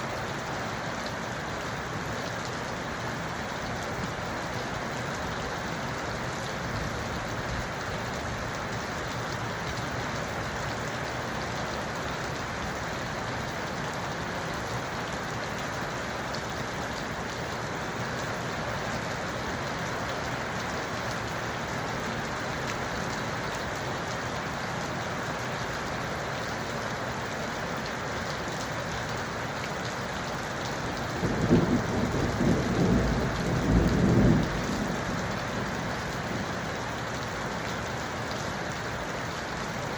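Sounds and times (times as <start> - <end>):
rain falling: 0.0 - 39.9
low thunder rumble: 31.2 - 36.5.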